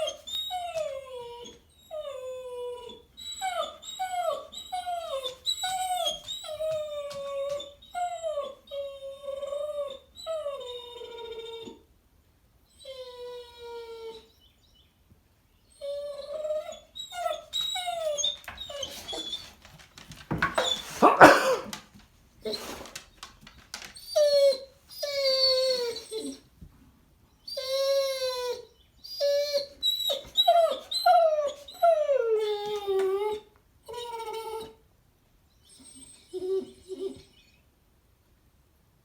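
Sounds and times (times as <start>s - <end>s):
dog whining and howling: 0.0s - 11.9s, 12.7s - 14.5s, 15.7s - 19.6s, 20.4s - 21.7s, 23.9s - 26.5s, 27.4s - 34.8s, 35.6s - 37.6s.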